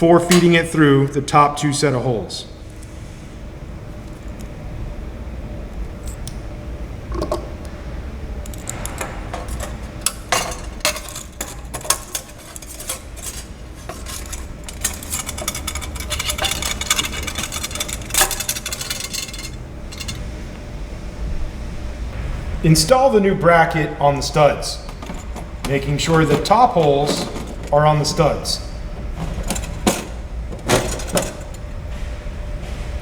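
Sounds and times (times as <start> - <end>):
steady low hum: 0.0 - 33.0
metal clinking and scraping: 8.4 - 20.4, 24.7 - 31.7.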